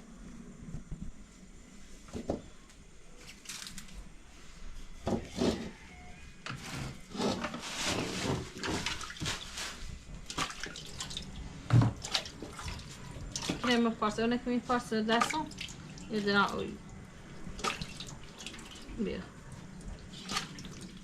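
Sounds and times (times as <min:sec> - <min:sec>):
water poured and sloshed in pot: 0:12.0 - 0:14.1, 0:17.4 - 0:21.0.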